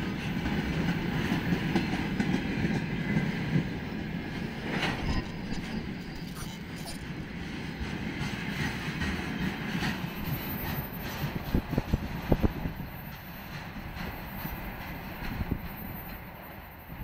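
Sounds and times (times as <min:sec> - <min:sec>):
train wheel clacks: 0:00.0 - 0:06.0, 0:07.3 - 0:16.4
freight train rolling past: 0:00.0 - 0:17.0.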